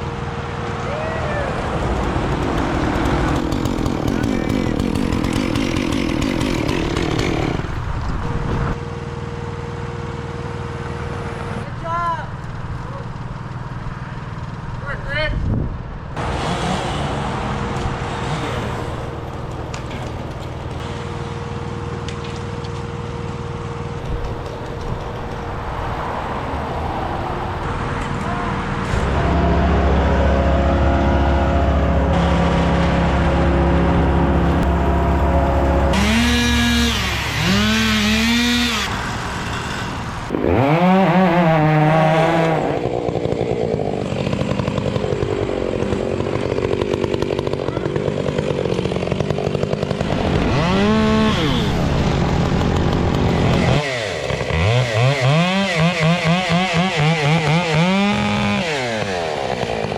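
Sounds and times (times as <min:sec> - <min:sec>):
chainsaw revving: 0:01.4 - 0:08.5, 0:16.2 - 0:22.9, 0:32.1 - 0:59.9
chainsaw engine running steadily: 0:01.4 - 0:09.2, 0:16.2 - 0:24.1, 0:30.6 - 0:59.9.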